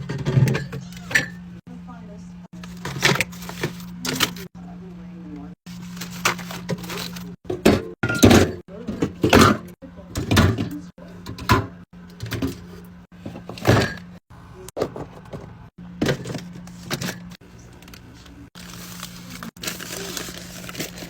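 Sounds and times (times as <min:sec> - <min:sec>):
packaging rustling: 0:05.7 - 0:07.4, 0:17.8 - 0:21.0
packages knocking and clunking: 0:14.8 - 0:17.9.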